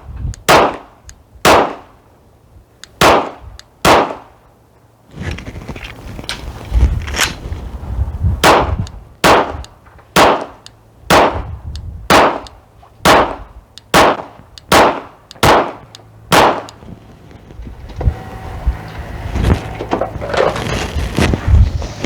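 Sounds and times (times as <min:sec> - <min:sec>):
wind rumbling on microphone: 0:00.0 - 0:01.6, 0:02.4 - 0:03.7, 0:05.0 - 0:22.0
pistol shots: 0:00.5 - 0:01.9, 0:03.0 - 0:04.3, 0:08.4 - 0:09.6, 0:10.2 - 0:11.5, 0:12.1 - 0:16.8.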